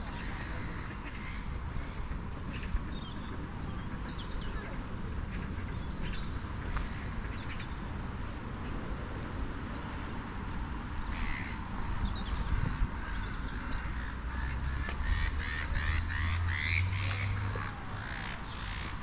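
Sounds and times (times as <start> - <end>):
birds chirping: 10.0 - 19.0
harsh bird calls: 11.0 - 19.0.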